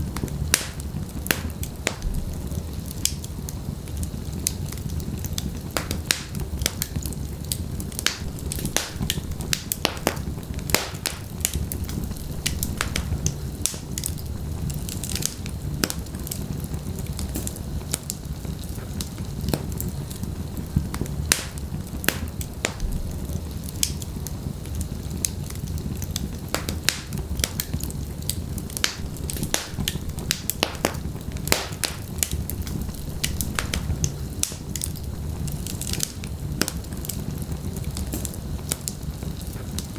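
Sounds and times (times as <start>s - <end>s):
burning logs popping and snapping: 0.0s - 39.9s
low rumble of flame: 0.0s - 39.9s.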